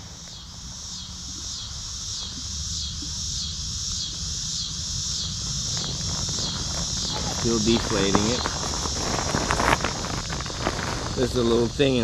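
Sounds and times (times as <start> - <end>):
insects pulsing chorus: 0.0 - 12.0.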